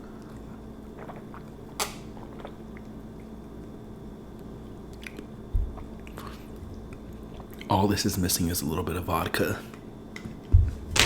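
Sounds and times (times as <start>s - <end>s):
chewing and wet mouth sounds: 0.1s - 7.9s.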